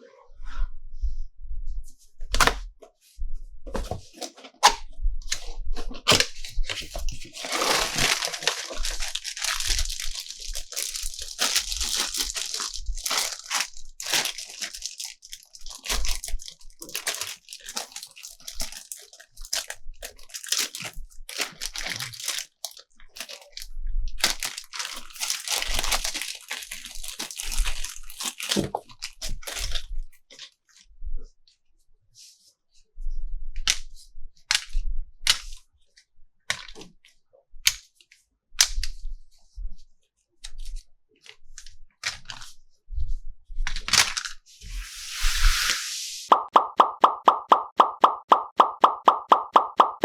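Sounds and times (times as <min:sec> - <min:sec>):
plastic crinkling and rustling: 0:05.3 - 0:29.8
clicks and taps: 0:46.3 - 0:50.0.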